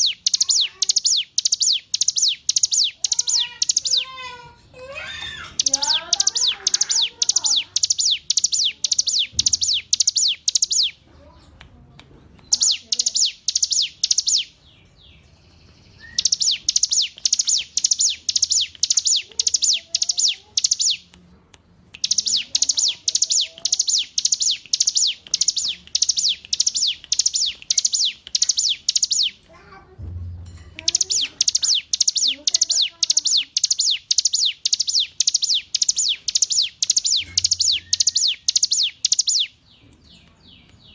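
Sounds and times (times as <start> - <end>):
faint lower bird chirps: 0.0 - 4.1, 5.2 - 11.4, 12.5 - 21.1, 30.8 - 40.9
bird singing high repeated notes: 0.0 - 4.2, 5.2 - 11.0, 12.5 - 21.1, 22.0 - 29.4, 30.5 - 39.9.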